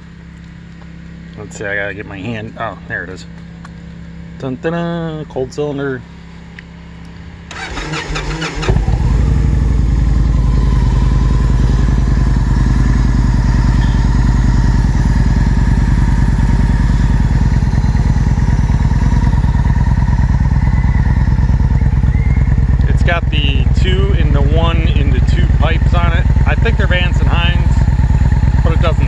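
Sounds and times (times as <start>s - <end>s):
motorcycle engine starting and idling: 7.4s - 29.0s.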